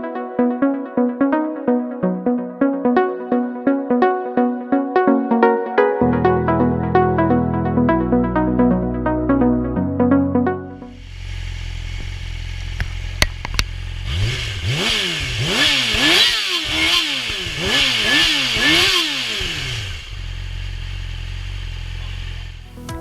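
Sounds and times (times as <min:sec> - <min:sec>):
motorcycle engine idling and revving: 0:11.0 - 0:23.0.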